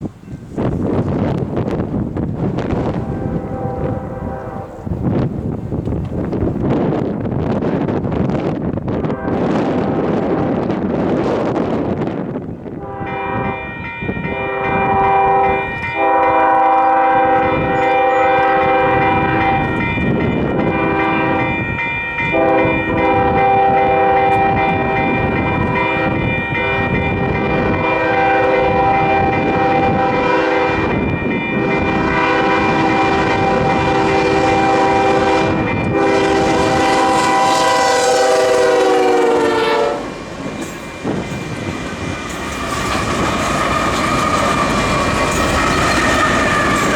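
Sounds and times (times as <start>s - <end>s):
rumble of passing train: 0.0s - 46.9s
wind on microphone: 0.0s - 46.9s
locomotive air horn chord: 2.8s - 5.0s, 9.0s - 10.2s, 12.8s - 21.6s, 22.3s - 40.2s.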